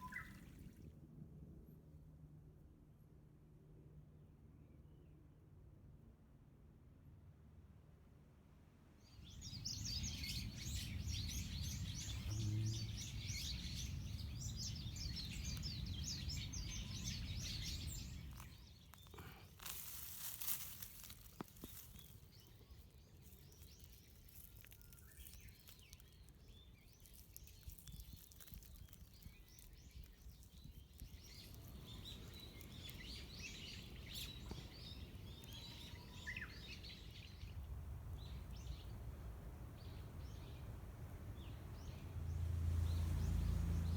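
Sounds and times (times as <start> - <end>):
birds chirping: 0.0 - 0.5, 9.2 - 39.0.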